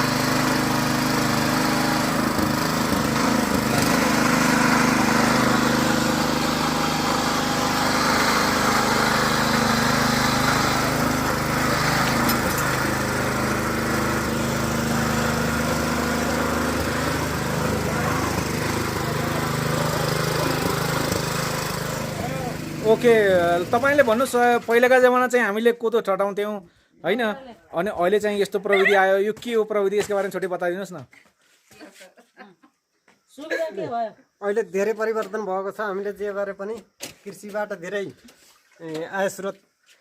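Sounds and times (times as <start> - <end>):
tractor engine running under load: 0.0 - 24.2
threshing rattle: 2.1 - 24.7.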